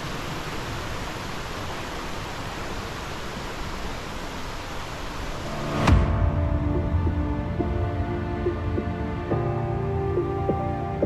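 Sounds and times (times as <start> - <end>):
waterfall roaring: 0.0 - 11.0
music: 5.4 - 11.0.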